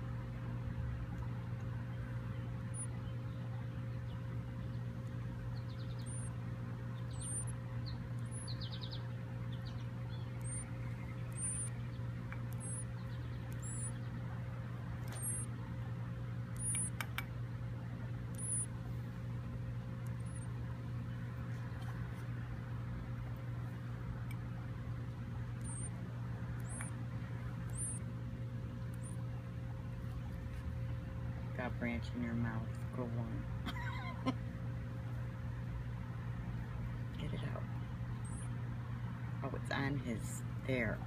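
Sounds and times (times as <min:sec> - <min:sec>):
steady low hum: 0:00.0 - 0:41.0
nestling bird chirping: 0:02.0 - 0:15.8, 0:16.4 - 0:17.3, 0:18.1 - 0:19.0, 0:19.7 - 0:22.2, 0:25.4 - 0:29.8, 0:36.6 - 0:38.6.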